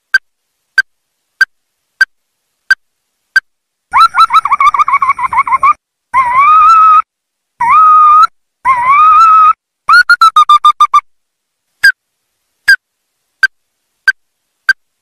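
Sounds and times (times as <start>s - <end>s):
crake calling: 3.4s - 11.1s.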